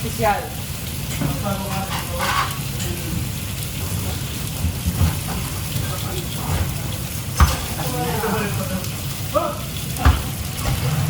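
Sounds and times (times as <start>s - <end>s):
food sizzling in a pan: 0.0s - 11.0s
dull stirring knocks: 4.1s - 7.8s, 9.9s - 11.0s.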